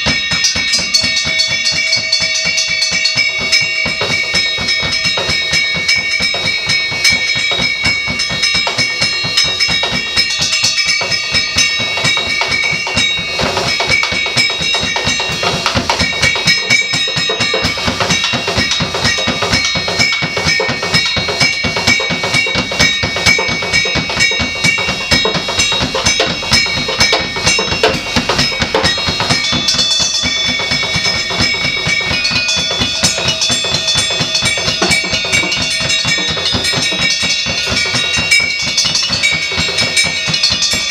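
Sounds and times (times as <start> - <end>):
high ringing tones: 0.0 - 40.9
rapid drum kit playing: 0.0 - 40.9.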